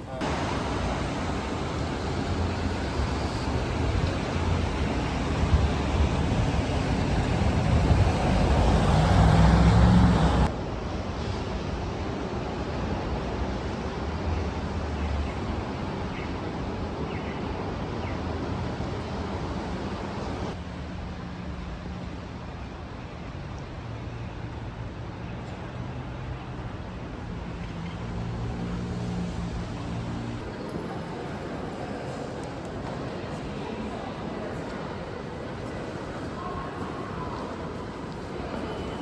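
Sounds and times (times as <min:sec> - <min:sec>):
road traffic: 0:00.0 - 0:39.0
heavy rain: 0:00.2 - 0:10.5
vehicle passing: 0:00.2 - 0:10.5.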